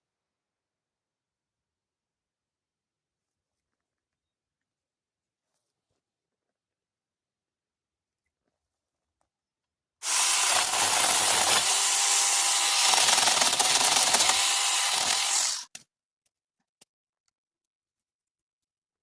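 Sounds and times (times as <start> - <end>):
electric cutter cutting branches: 10.0 - 15.7.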